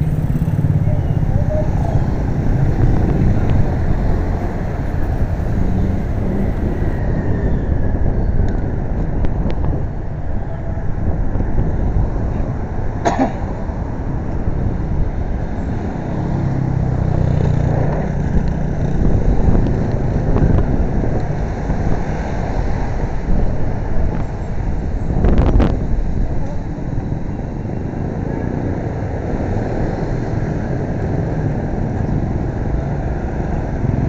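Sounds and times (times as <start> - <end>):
passing vehicle engine: 0.0 - 7.0
wind and road noise: 0.0 - 34.0.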